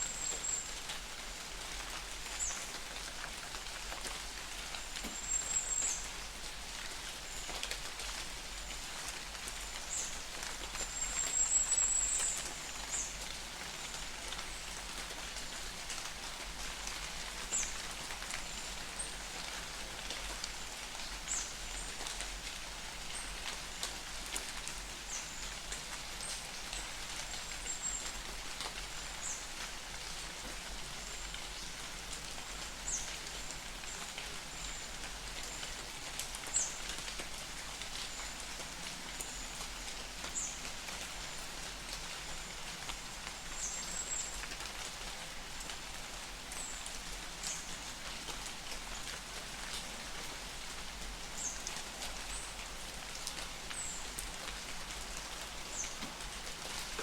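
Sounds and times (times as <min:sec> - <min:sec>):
rain patter in forest: 0:00.0 - 0:57.0.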